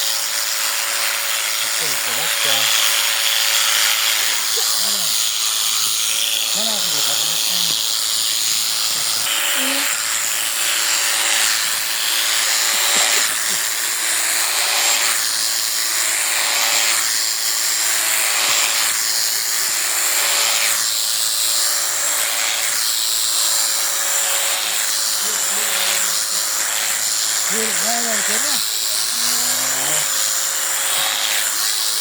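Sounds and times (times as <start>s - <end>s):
electric shearing clippers buzzing: 0.0s - 32.0s.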